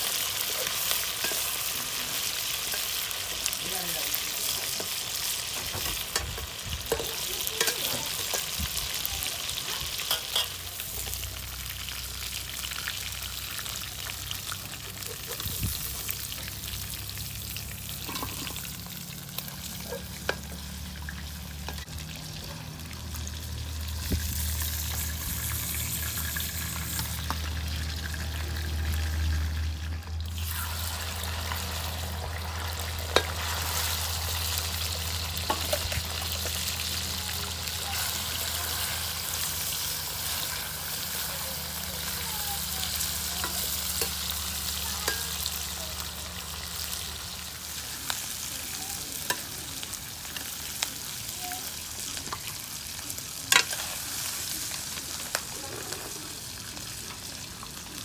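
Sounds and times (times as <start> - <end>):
chicken sizzling in hot oil: 0.0 - 58.0.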